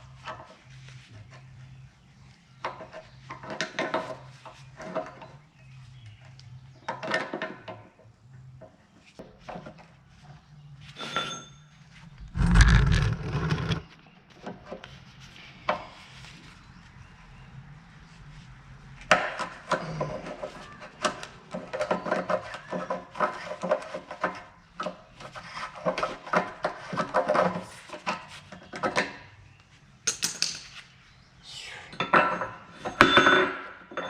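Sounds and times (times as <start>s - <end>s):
steady low hum: 12.0s - 13.9s.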